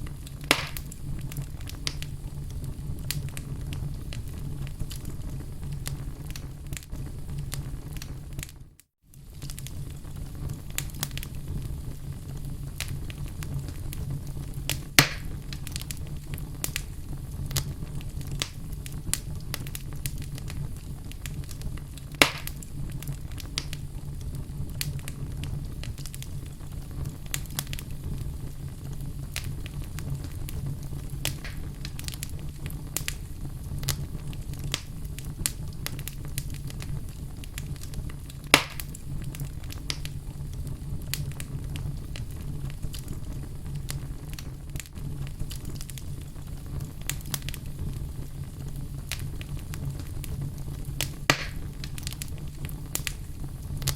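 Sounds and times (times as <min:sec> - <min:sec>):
fire crackling: 0:00.0 - 0:53.9
fire rumbling: 0:00.0 - 0:53.9
sharp wood pops: 0:00.5 - 0:00.8, 0:15.0 - 0:15.3, 0:22.2 - 0:22.6, 0:31.4 - 0:31.7, 0:38.5 - 0:38.9, 0:51.3 - 0:51.6.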